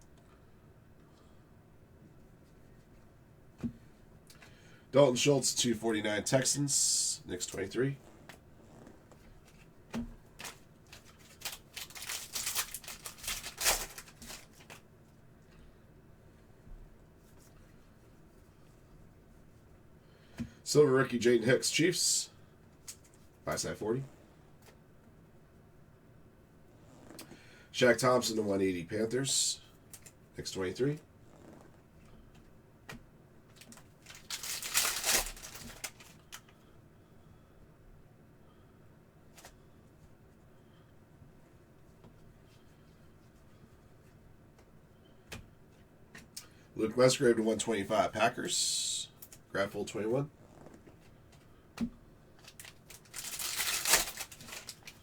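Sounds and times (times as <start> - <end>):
cards and packaging rustling: 10.4 - 14.9, 33.5 - 36.5, 52.4 - 55.0.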